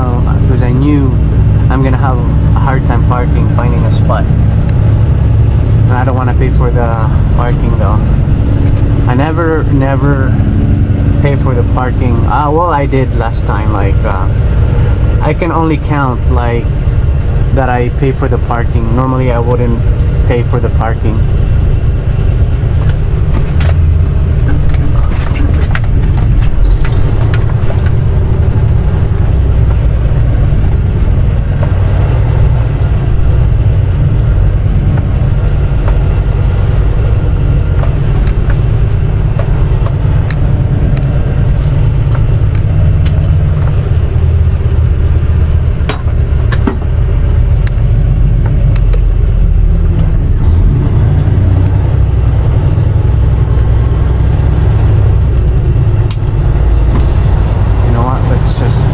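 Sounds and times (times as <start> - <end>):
diesel truck engine running: 0.0 - 58.9.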